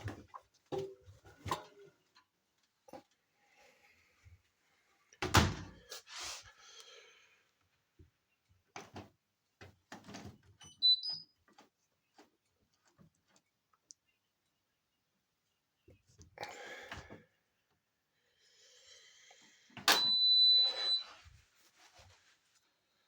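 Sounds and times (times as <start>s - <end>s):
short high beep: 20.0s - 21.1s.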